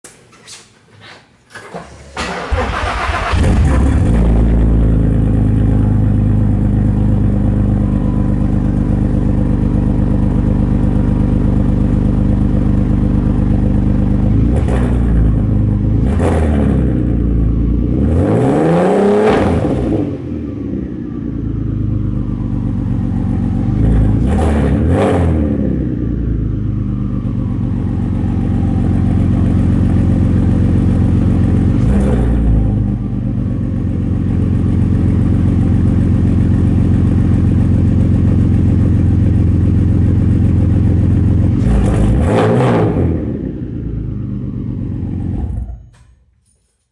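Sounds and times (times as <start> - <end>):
car engine starting and revving: 2.0 - 46.0.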